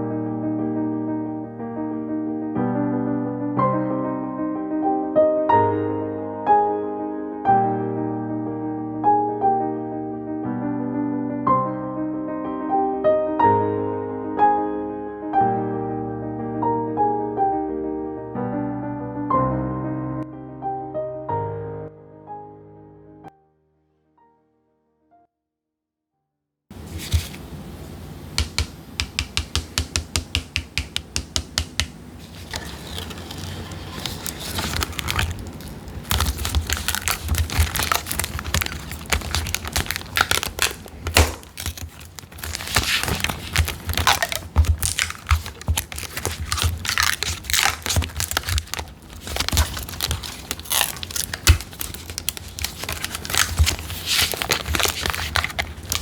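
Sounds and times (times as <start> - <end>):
thin sheet crinkling and tearing: 26.8 - 27.5, 32.2 - 56.0.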